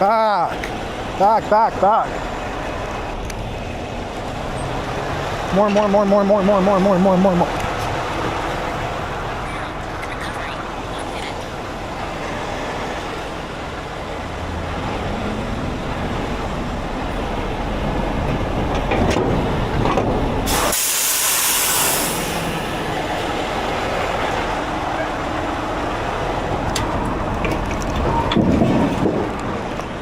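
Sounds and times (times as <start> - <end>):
diesel truck engines running: 0.0 - 30.0
loud hiss: 20.5 - 22.8.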